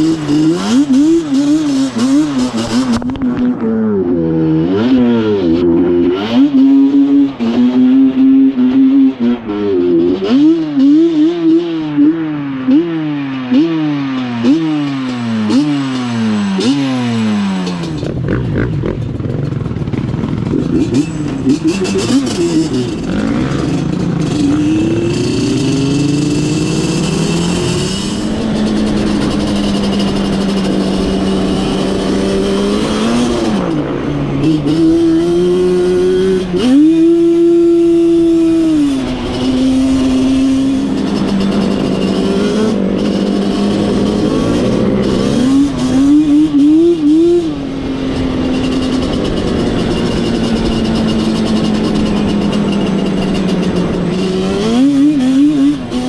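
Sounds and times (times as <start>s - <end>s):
off-road vehicle engine revving: 0.0s - 56.0s.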